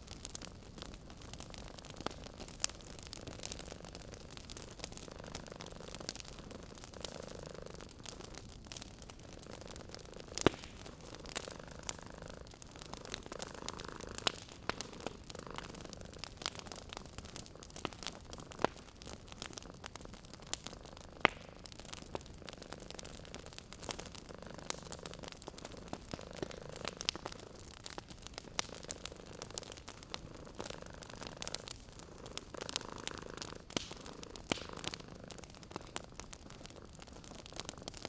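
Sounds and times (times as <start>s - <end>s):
wood fire crackling: 0.0s - 38.0s
cat purring: 0.2s - 38.0s.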